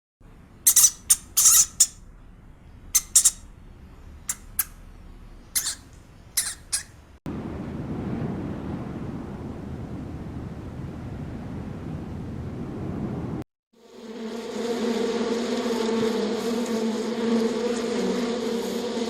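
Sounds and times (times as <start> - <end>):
high-pitched chirps: 0.7 - 2.0, 3.0 - 3.4, 4.3 - 4.7, 5.6 - 6.9
wind noise on microphone: 7.4 - 13.4.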